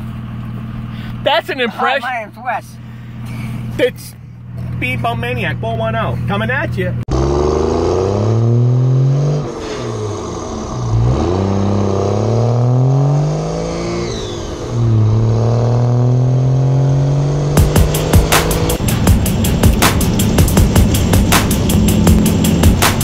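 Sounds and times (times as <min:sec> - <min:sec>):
engine accelerating hard: 0:07.0 - 0:23.0.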